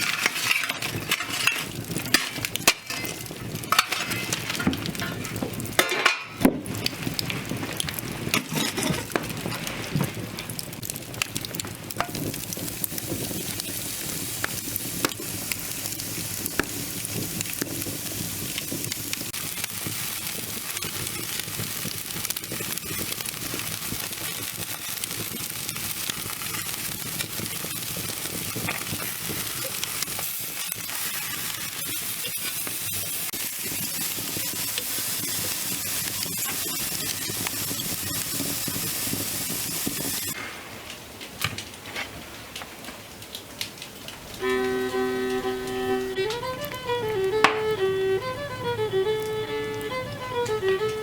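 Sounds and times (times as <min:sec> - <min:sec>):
food sizzling in a pan: 0:00.0 - 0:40.4, 0:44.3 - 0:51.0.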